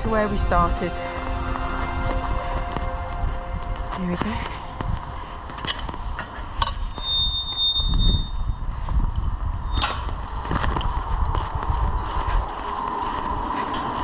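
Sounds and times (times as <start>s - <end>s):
low rumble: 0.0s - 6.9s.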